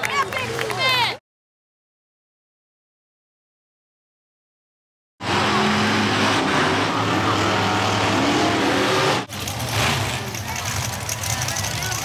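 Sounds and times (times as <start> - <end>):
truck engine revving: 5.2 - 12.0.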